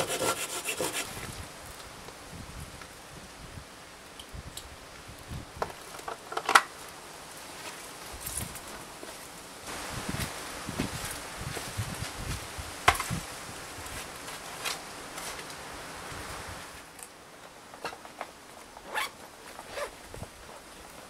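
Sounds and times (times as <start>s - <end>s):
dry leaves rustling: 5.8s - 17.2s.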